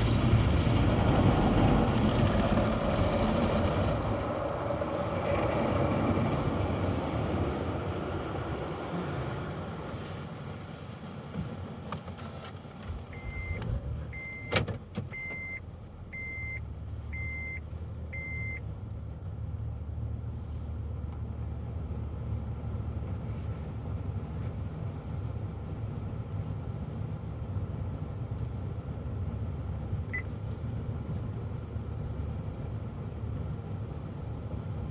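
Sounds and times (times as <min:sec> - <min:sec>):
car wash low rumble: 0:00.0 - 0:34.9
short electronic beeps: 0:13.1 - 0:14.5, 0:15.1 - 0:15.6, 0:16.2 - 0:17.6, 0:18.2 - 0:18.6.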